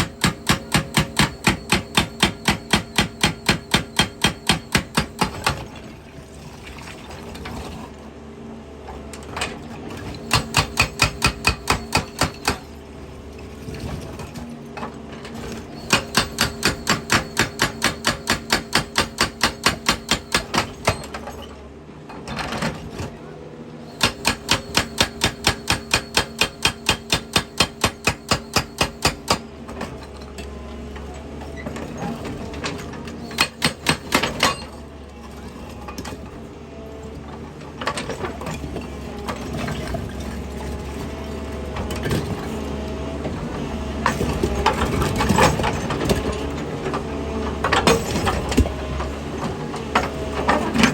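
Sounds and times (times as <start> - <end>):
excavator engine running: 0.0 - 5.8, 8.2 - 21.2, 23.9 - 31.2, 31.8 - 50.9
hydraulic breaker hammering rock: 0.0 - 5.8, 10.0 - 12.8, 15.5 - 21.4, 23.9 - 30.0, 31.8 - 34.9, 44.0 - 50.9.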